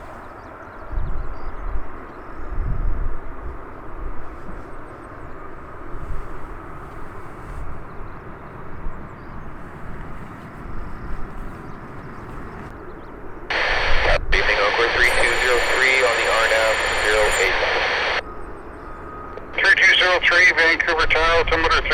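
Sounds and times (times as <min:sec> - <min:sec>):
jet airliner engines rumbling: 0:04.6 - 0:21.9.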